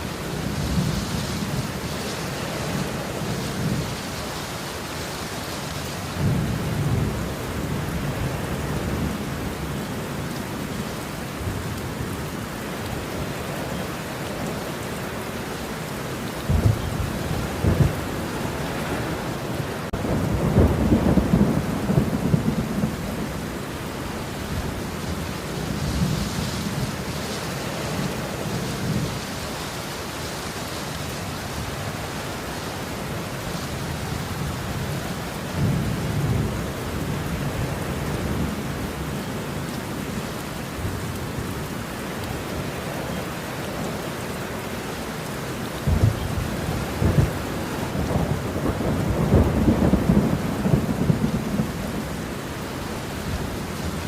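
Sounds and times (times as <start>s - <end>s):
steady rain falling: 0.0s - 54.0s
rolling thunder rumble: 16.4s - 29.4s, 45.8s - 54.0s.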